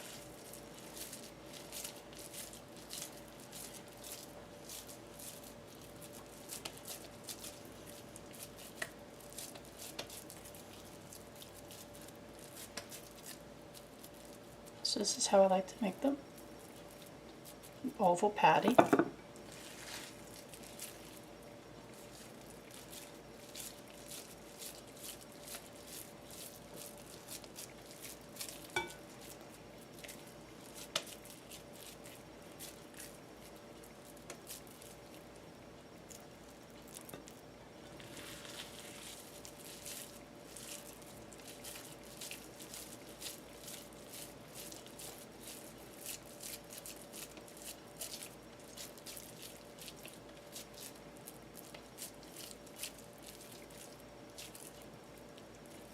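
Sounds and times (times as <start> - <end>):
hands patting raw ground meat: 0.0 - 13.9, 30.0 - 33.1.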